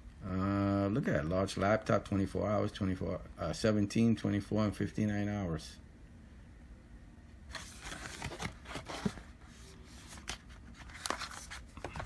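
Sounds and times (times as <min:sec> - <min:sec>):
packaging rustling: 0:07.5 - 0:12.0
packaging scraping: 0:07.5 - 0:12.0.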